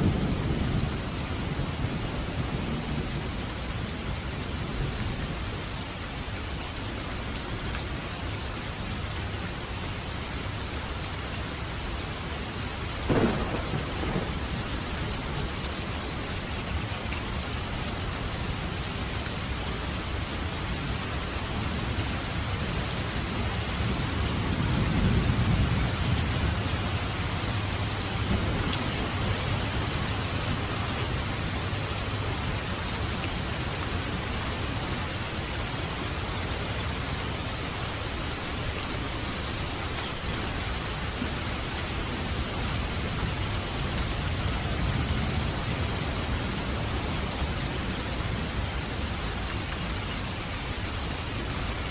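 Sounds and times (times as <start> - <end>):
heavy rain on a roof: 0.0 - 51.9
distant thunder rumbling: 13.0 - 16.8, 23.8 - 33.0.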